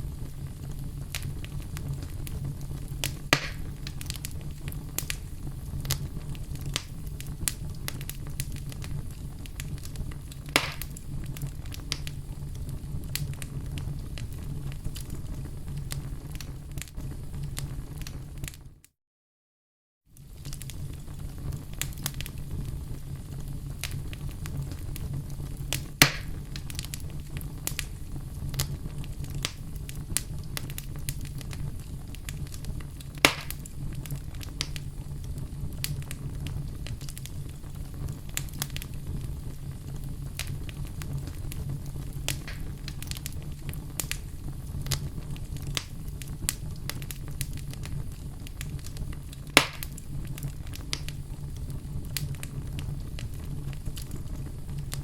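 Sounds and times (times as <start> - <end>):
loud sharp fire pops: 0.0 - 18.6, 23.8 - 55.0
low rumble of flames: 0.0 - 18.9, 20.1 - 55.0
small fire crackles: 0.0 - 19.0, 20.0 - 55.0.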